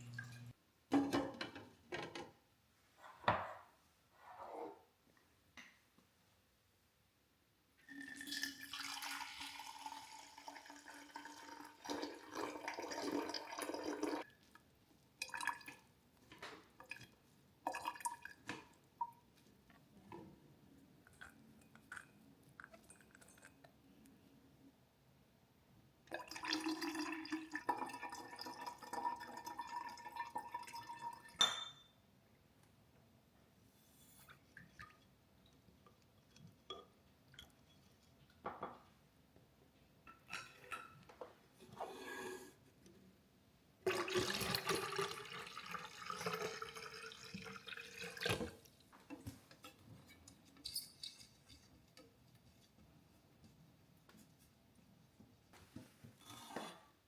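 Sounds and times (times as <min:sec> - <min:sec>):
drink pouring into a glass: 0:07.8 - 0:14.3, 0:26.1 - 0:31.4, 0:43.9 - 0:48.6
glass clink: 0:31.4 - 0:32.0.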